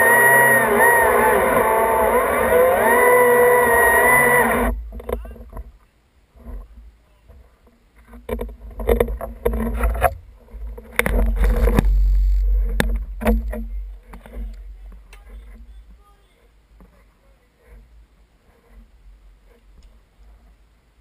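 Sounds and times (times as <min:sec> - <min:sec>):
chainsaw running: 0:00.0 - 0:04.8
low rumbling thuds: 0:04.6 - 0:05.8, 0:08.2 - 0:16.0.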